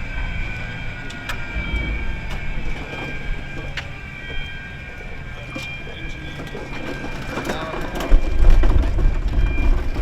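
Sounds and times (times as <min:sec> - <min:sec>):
faint high whine: 0:00.0 - 0:08.1
vehicle rumble inside cabin: 0:00.0 - 0:10.0.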